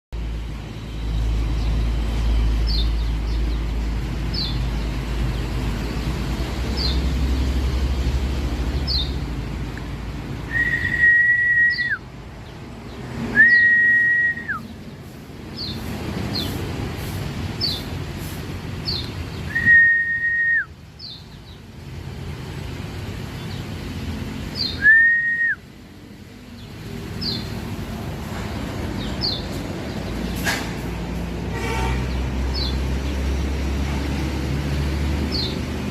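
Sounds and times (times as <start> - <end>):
birds chirping: 0.2 - 35.9
long whistles dropping in pitch: 10.5 - 12.0, 13.3 - 14.6, 19.5 - 20.7, 24.8 - 25.6.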